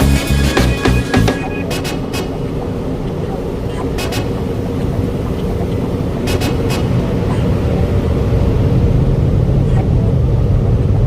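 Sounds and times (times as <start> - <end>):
short sharp clicks: 6.3 - 7.0.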